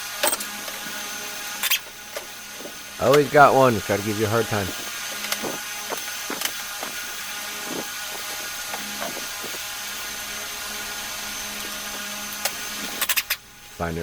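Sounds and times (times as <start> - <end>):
steady background hum: 0.0 - 14.0
hand tools clicking on metal: 0.2 - 3.3, 3.9 - 9.7, 11.4 - 13.4.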